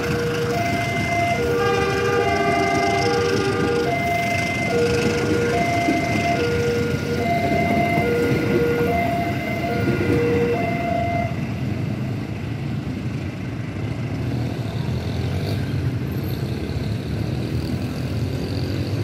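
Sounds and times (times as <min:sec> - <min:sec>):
train coaches rumbling: 0:00.0 - 0:13.0.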